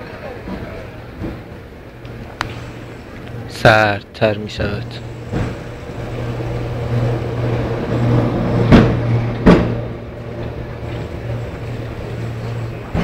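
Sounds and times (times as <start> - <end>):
low mechanical hum: 0.0 - 13.0
sharp knocks: 5.3 - 5.7, 8.6 - 9.9.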